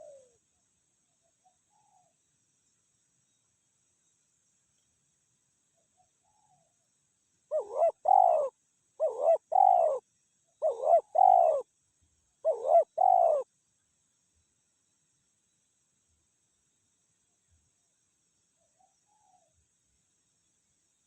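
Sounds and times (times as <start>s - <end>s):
dove cooing: 0.0s - 0.4s, 7.5s - 10.0s, 10.6s - 11.7s, 12.4s - 13.5s.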